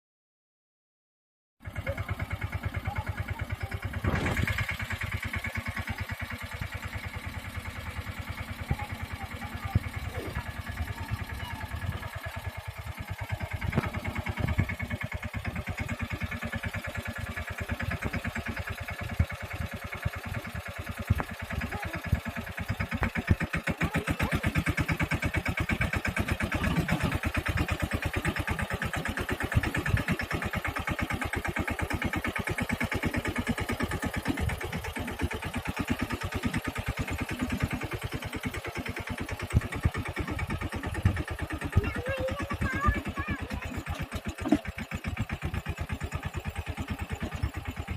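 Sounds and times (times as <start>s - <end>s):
diesel tractor engine thudding: 2.0s - 47.9s.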